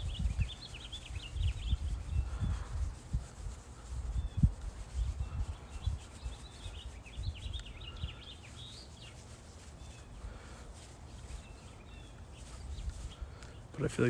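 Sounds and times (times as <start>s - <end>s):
bird chirping: 0.0s - 2.5s, 4.2s - 10.2s, 11.2s - 13.9s
paintbrush rubbing paint: 0.0s - 14.0s.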